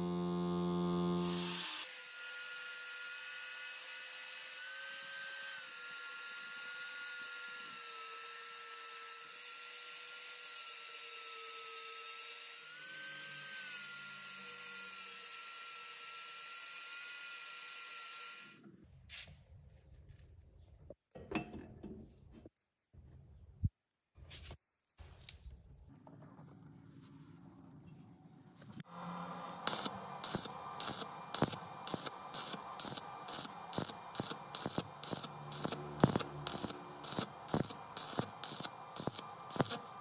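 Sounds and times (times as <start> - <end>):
small power tool motor whining: 0.0 - 18.6, 28.8 - 40.0.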